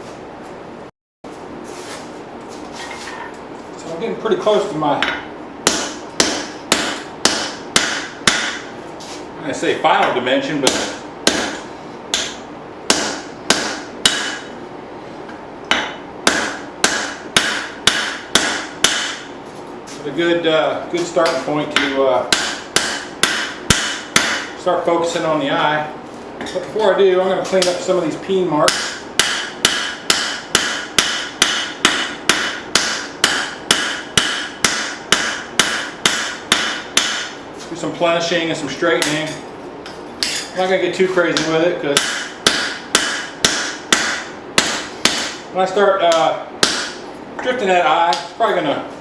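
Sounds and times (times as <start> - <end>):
hammer ringing on anvil: 28.7 - 37.4, 41.4 - 45.4.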